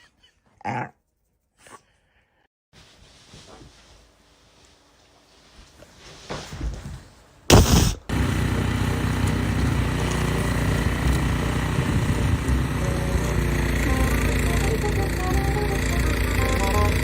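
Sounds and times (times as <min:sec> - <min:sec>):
short loud blast: 0:07.5 - 0:08.1
engine running steadily: 0:07.5 - 0:17.0.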